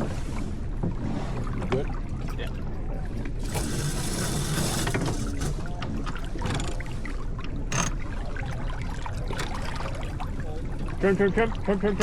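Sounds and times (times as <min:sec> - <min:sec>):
water rushing along boat hull: 0:00.0 - 0:12.0.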